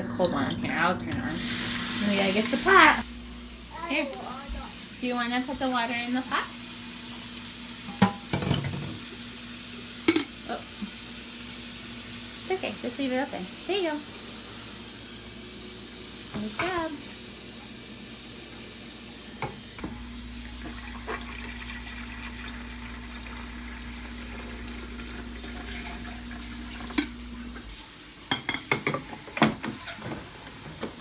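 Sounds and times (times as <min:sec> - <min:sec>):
tap running into sink: 0:19.4 - 0:22.4.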